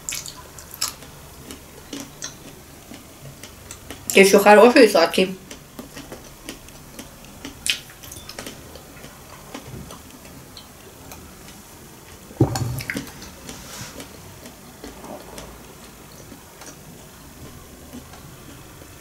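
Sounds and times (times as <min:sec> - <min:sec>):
soft chewing: 0:00.0 - 0:04.2, 0:05.4 - 0:19.0
wet mouth clicks: 0:05.5 - 0:08.6
thud: 0:12.4 - 0:13.0.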